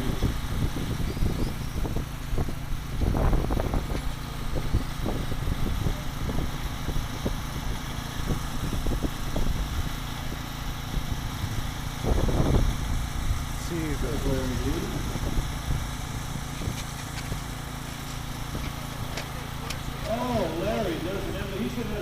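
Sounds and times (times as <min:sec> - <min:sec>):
steady low rumble: 0:00.0 - 0:22.0
model motorcycles racing: 0:13.6 - 0:15.3.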